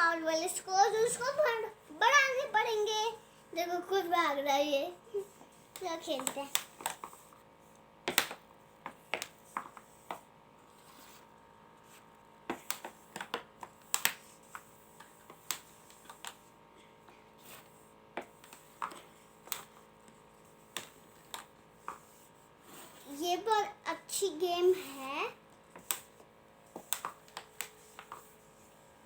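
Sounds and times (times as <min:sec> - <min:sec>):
air hockey pucks clacking: 0:05.8 - 0:07.2, 0:08.1 - 0:10.2, 0:26.8 - 0:28.3.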